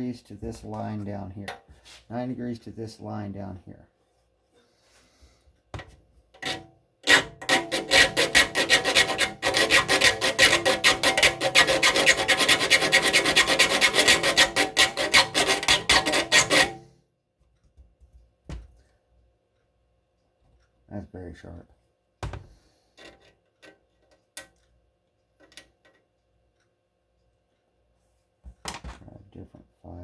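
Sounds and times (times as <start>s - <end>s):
file rasping on saw teeth: 6.4s - 16.8s.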